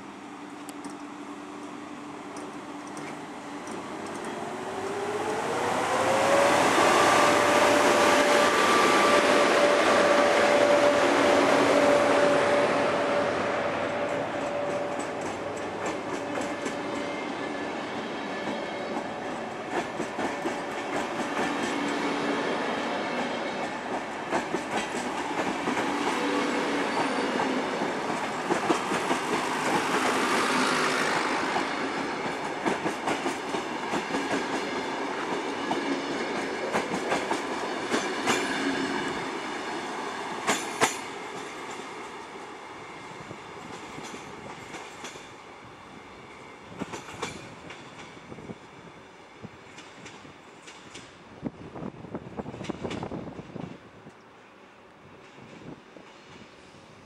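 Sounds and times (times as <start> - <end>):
train wheels clicking over rail joints: 0.6 - 5.7, 14.0 - 17.1, 18.4 - 22.1, 23.1 - 39.2, 40.4 - 42.0, 43.6 - 45.4, 46.7 - 48.4, 49.7 - 51.2, 52.4 - 54.2.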